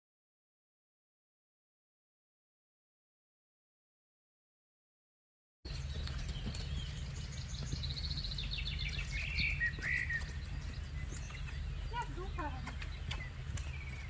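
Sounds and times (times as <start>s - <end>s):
bird trilling: 5.7s - 14.0s
steady low rumble: 5.7s - 14.0s
wild birds chirping: 5.7s - 14.0s.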